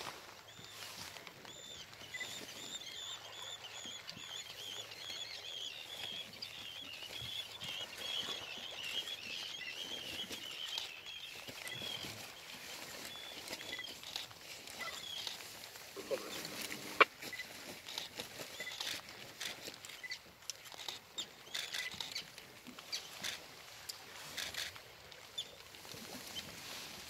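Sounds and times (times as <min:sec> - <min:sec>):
birds twittering: 0:00.5 - 0:17.4.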